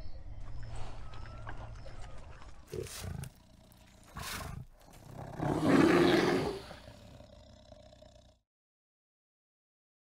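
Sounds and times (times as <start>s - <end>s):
bear growling: 2.7s - 8.4s
bear huffing: 2.7s - 8.4s.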